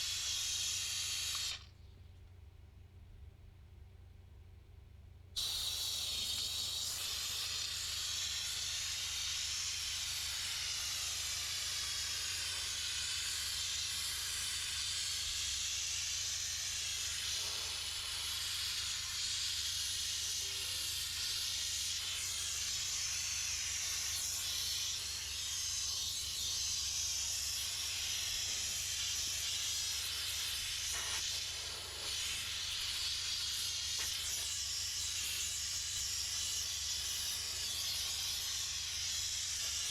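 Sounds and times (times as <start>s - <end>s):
steam cleaner hissing: 0.0s - 1.7s, 5.4s - 39.9s.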